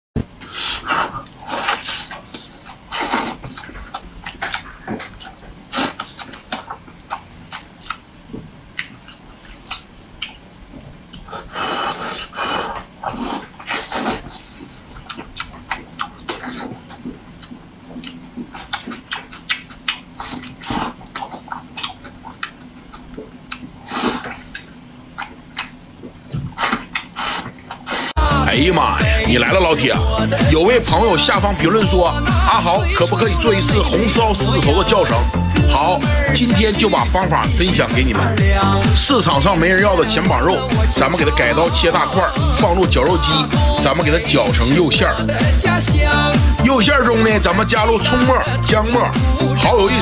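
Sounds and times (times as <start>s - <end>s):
man chewing food: 0.2s - 50.0s
breathing: 0.4s - 1.3s
wet lip smacks and mouth clicks: 1.2s - 28.1s.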